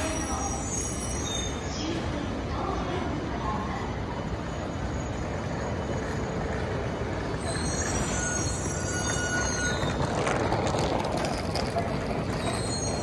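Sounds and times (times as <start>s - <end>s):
high-pitched train squeal: 0.0s - 2.0s, 7.2s - 11.3s, 12.0s - 13.0s
train rumble: 0.0s - 13.0s.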